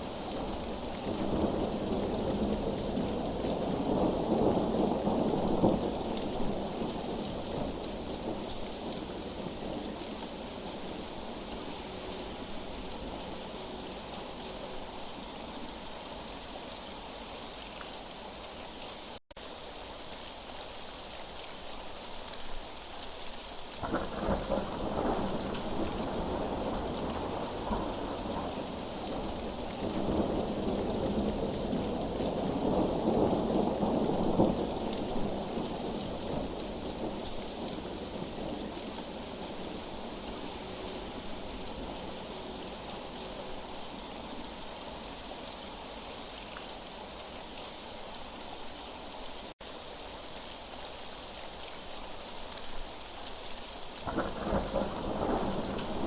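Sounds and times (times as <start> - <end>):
steady rain: 0.0 - 56.0
rolling thunder: 54.1 - 56.0.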